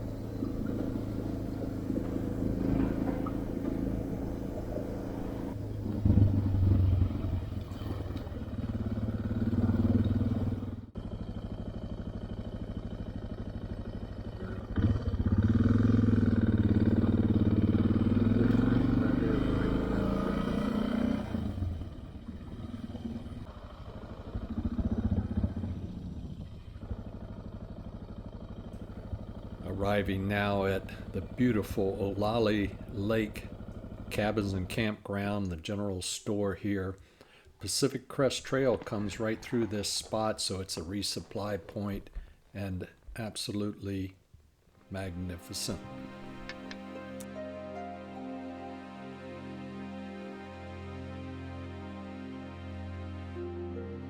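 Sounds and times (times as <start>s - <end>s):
motorcycle engine accelerating: 0.0s - 35.3s, 44.9s - 47.4s.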